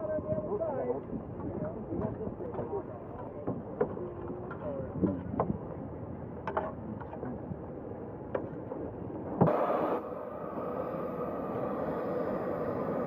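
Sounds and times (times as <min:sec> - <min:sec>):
steam engine mechanical noise: 0:09.4 - 0:13.0.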